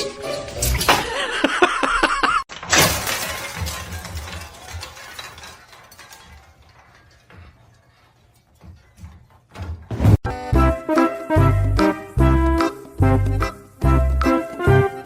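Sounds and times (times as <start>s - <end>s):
loud crash of shattering: 0.0s - 1.4s, 2.5s - 7.8s.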